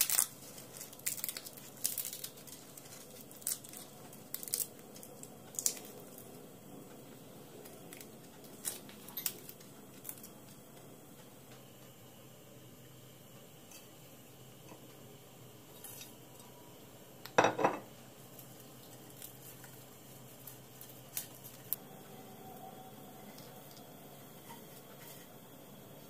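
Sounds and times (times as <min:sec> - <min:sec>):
dish clattering on hard surface: 0:17.4 - 0:17.8.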